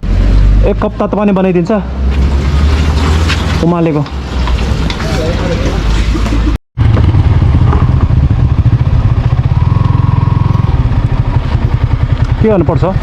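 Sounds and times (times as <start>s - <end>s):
motorcycle engine running: 6.8s - 13.0s.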